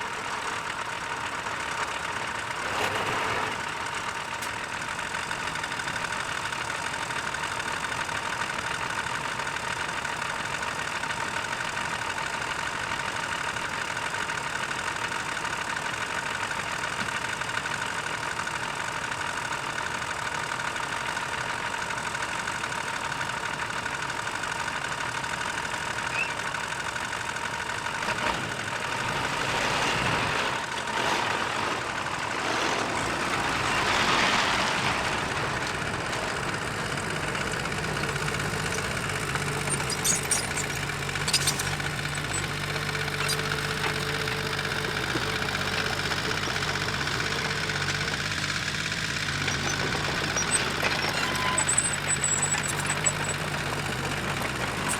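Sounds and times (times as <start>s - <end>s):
heavy machinery diesel engine: 0.0s - 54.9s
sharp metallic clicks: 38.6s - 42.5s.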